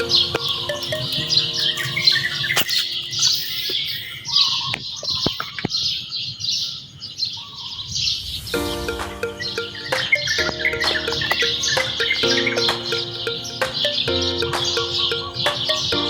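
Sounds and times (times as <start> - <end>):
held musical tones: 0.0 - 3.2, 8.5 - 16.0
small birds chirping: 0.0 - 16.0.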